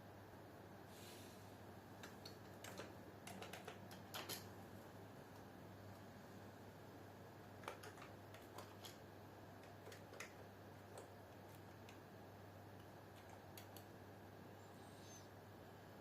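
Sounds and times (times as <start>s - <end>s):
low steady hum: 0.0s - 16.0s
computer keyboard keystrokes: 2.0s - 4.5s, 7.6s - 9.0s, 9.6s - 12.0s, 12.8s - 13.9s.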